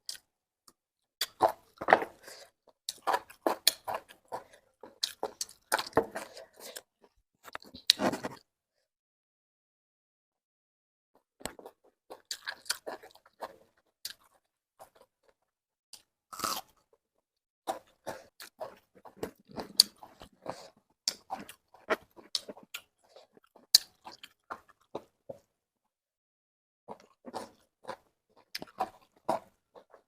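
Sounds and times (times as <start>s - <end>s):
person chewing and crunching food: 0.0s - 8.4s, 11.2s - 17.0s, 17.6s - 25.6s, 26.9s - 30.0s.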